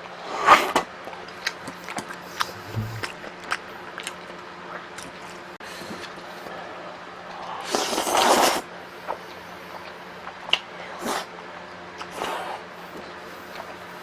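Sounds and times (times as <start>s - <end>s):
chewing smacks and clicks: 1.1s - 5.3s, 9.1s - 11.2s.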